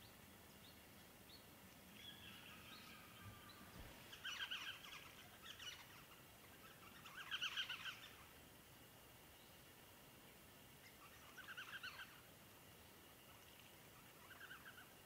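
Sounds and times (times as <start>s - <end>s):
birds chattering calls: 2.0s - 8.4s, 10.8s - 12.3s, 13.2s - 15.0s.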